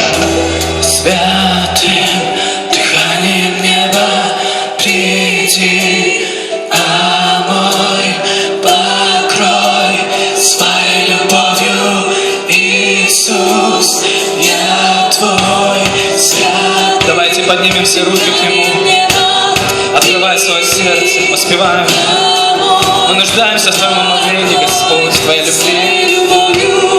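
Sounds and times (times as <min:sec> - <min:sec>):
steady bass note: 0:00.0 - 0:02.4
congregation singing worship song: 0:00.0 - 0:26.9.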